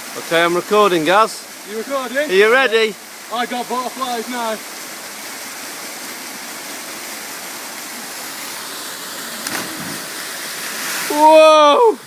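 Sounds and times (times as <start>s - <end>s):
waterfall pouring: 5.3s - 12.0s.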